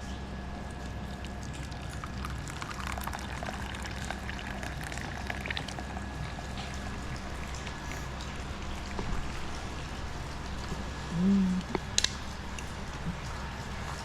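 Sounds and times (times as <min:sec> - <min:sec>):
steady low hum: 0:00.0 - 0:14.0
water trickling and dripping: 0:00.5 - 0:11.1.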